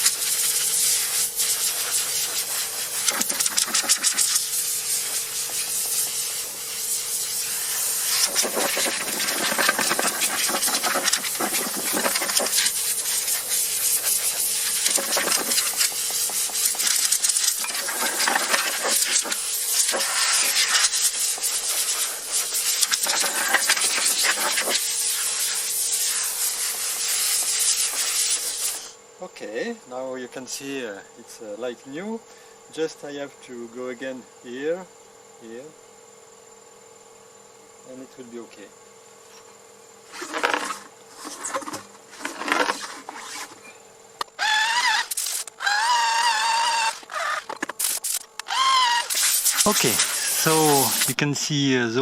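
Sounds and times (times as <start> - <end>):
compressed air blow gun hissing: 0.0 - 29.0, 40.1 - 51.3
faint steady hum: 0.0 - 36.7.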